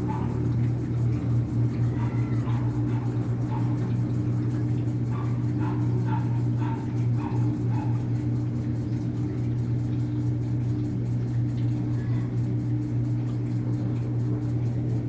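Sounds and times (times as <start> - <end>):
dog barking: 0.0 - 0.5, 1.8 - 4.0, 5.1 - 8.1.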